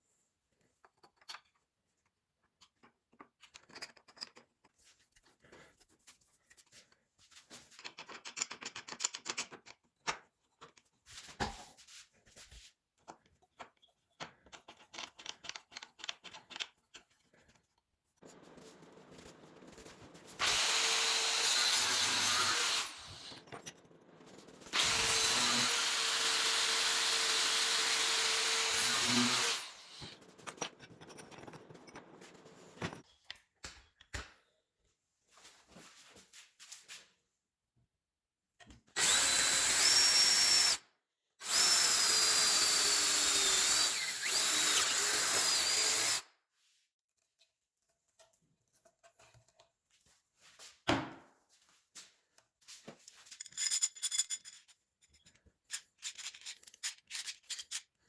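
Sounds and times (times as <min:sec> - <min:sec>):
electric power tool whining: 0:18.3 - 0:23.5, 0:24.3 - 0:30.3, 0:41.4 - 0:46.2
parts clicking while handled: 0:53.3 - 0:58.0.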